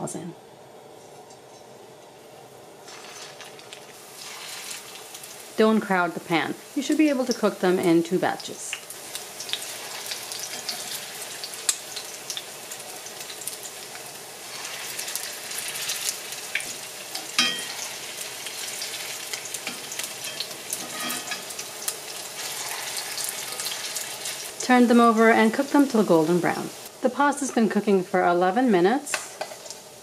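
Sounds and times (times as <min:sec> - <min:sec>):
meatballs sizzling in oil: 0:02.8 - 0:30.0.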